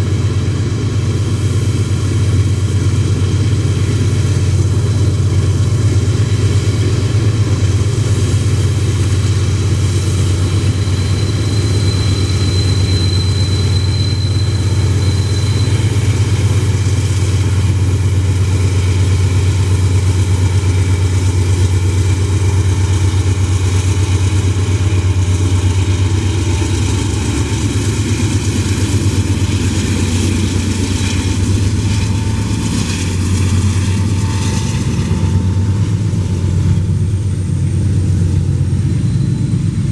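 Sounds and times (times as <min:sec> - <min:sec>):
diesel locomotive engine drone: 0:00.0 - 0:39.9
thin high whine: 0:10.5 - 0:17.5, 0:23.2 - 0:39.9.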